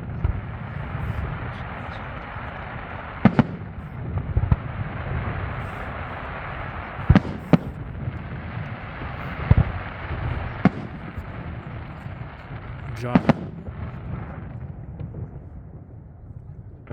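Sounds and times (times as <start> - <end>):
fireworks bangs: 0.0 - 16.9
fireworks crackle and rumble: 0.0 - 16.9.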